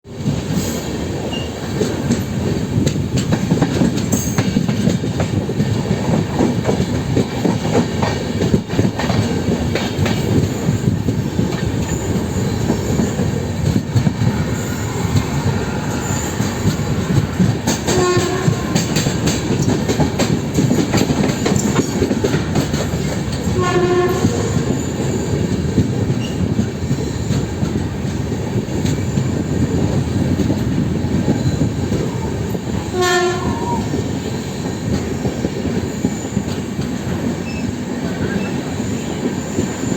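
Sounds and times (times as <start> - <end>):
train wheels rumbling and clattering: 0.0 - 39.9
locomotive horn blasts: 17.9 - 19.0, 23.6 - 24.7, 32.9 - 33.8.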